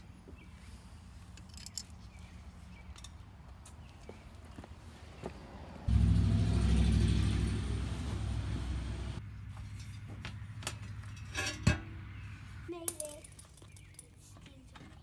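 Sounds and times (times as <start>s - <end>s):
engine running low hum: 5.7s - 12.6s.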